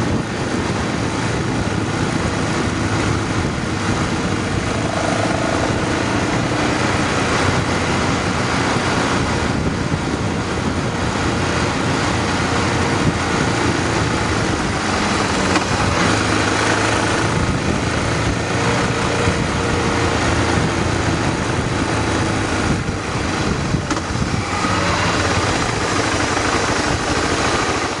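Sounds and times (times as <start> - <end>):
motorcycle engine running: 0.0 - 28.0
rushing noise: 1.8 - 17.8.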